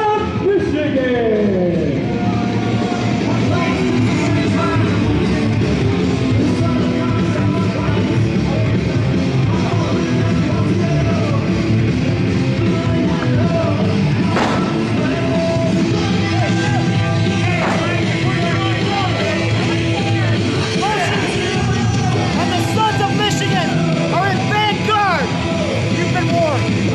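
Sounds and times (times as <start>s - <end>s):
loud rock music: 0.0s - 26.9s
shouted vocals: 12.6s - 26.9s.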